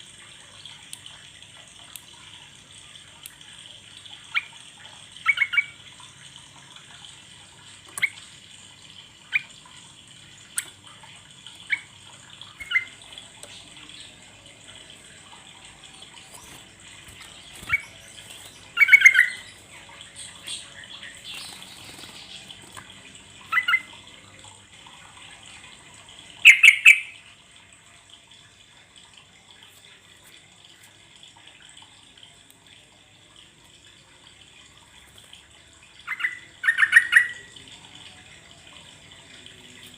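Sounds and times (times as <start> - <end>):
bulbul chirping and chattering: 15.7 - 22.7.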